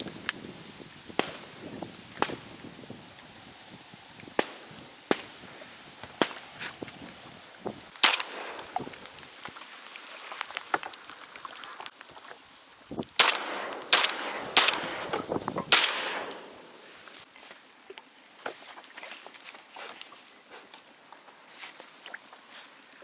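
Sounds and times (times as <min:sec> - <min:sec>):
shotgun shots echoing: 0:08.0 - 0:09.0, 0:13.2 - 0:16.9.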